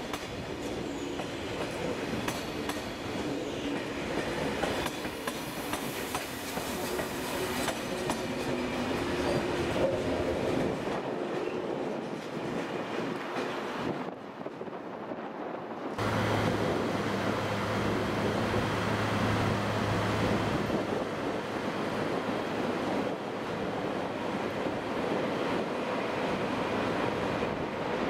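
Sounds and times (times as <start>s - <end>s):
high-speed train passing: 0.0s - 28.0s
train wheels clicking over rail joints: 0.1s - 3.0s, 3.7s - 10.0s.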